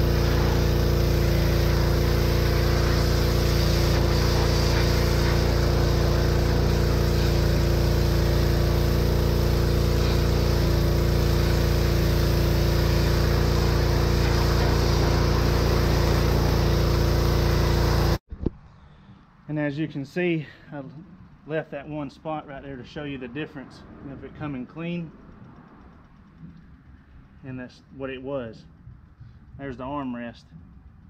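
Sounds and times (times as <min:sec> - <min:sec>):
small engine drone: 0:00.0 - 0:18.2
water spray hiss: 0:00.0 - 0:18.2.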